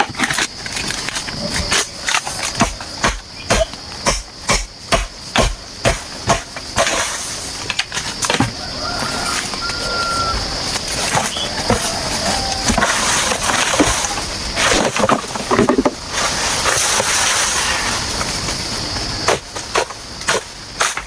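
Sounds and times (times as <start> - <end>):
bamboo knocking and cracking: 0.0 - 8.6
insects droning: 0.0 - 21.0.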